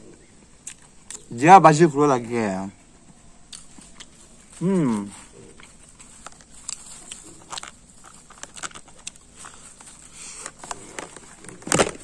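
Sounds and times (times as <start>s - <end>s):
person chewing: 0.6s - 1.3s, 3.2s - 11.6s.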